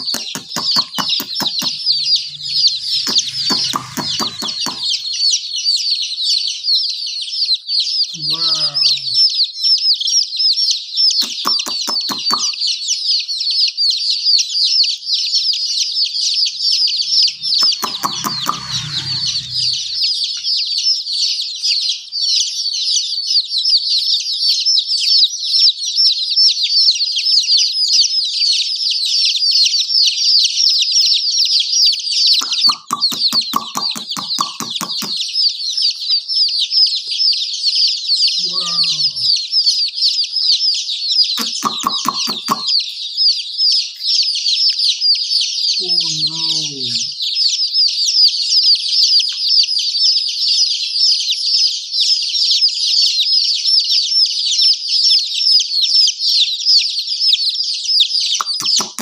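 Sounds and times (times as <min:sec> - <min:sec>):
hen clucking rapidly: 0:00.0 - 0:05.6, 0:11.2 - 0:12.6, 0:17.1 - 0:20.4, 0:32.4 - 0:35.2, 0:41.4 - 0:42.8, 0:58.4 - 0:59.0
baby chicks peeping: 0:00.0 - 0:59.0.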